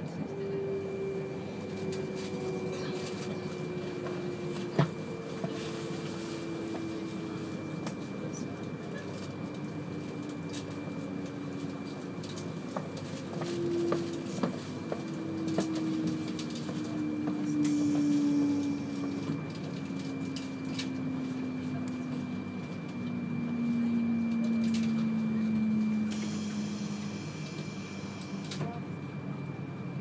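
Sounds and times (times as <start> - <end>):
train rumble: 0.0 - 30.0.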